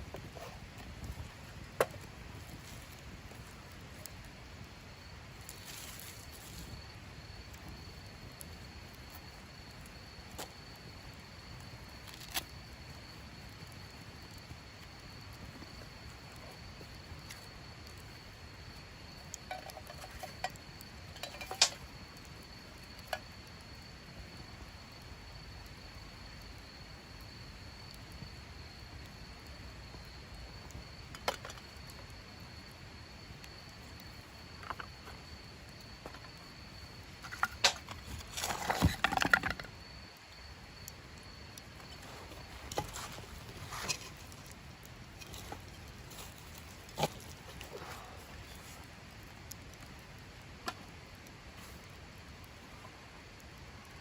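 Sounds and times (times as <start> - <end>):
metallic clinks of camp gear: 21.2 - 21.8, 41.9 - 44.5.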